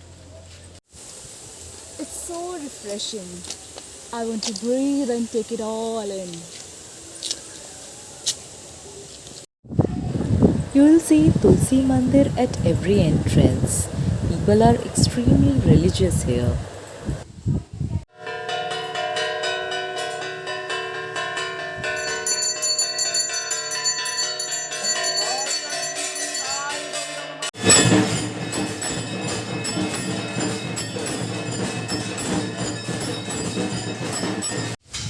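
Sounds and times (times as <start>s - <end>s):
bells ringing: 10.1s - 17.2s, 18.2s - 34.8s
jangling clatter of bell strikes: 21.2s - 34.8s.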